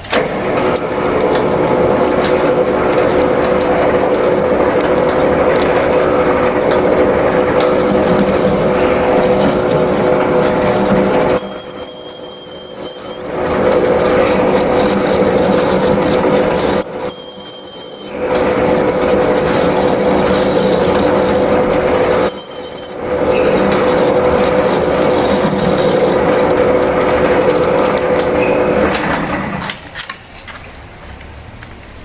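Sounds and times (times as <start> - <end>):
lathe humming: 0.2 - 29.5
high-pitched cutting squeal: 6.8 - 27.2.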